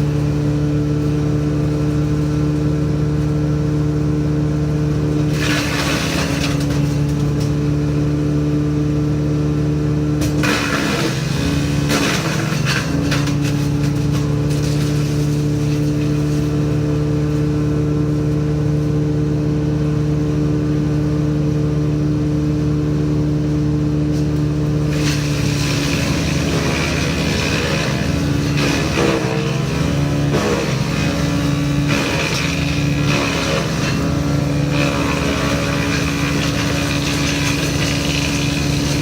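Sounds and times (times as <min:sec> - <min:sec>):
woodchipper engine running: 0:00.0 - 0:39.0
harsh grinding of chipping: 0:04.6 - 0:08.3, 0:10.2 - 0:17.6, 0:24.1 - 0:39.0.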